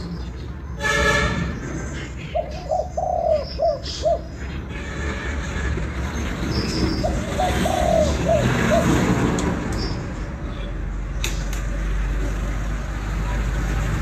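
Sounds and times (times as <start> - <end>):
dove cooing: 2.2 - 4.3, 7.0 - 9.1.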